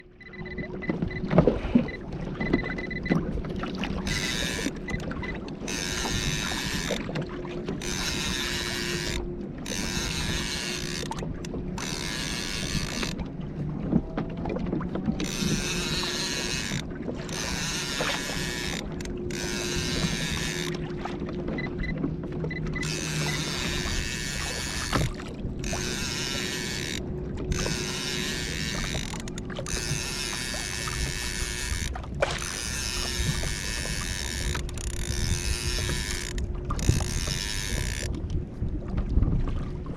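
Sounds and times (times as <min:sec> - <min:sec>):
water washing against hull: 0:00.0 - 0:39.9
fishing reel whirring and clicking: 0:03.8 - 0:13.2, 0:15.2 - 0:20.9, 0:21.6 - 0:38.4.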